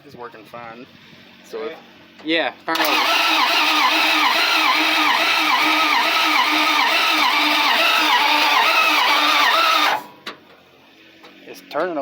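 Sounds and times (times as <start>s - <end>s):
truck engine cranking on starter: 2.7s - 10.3s.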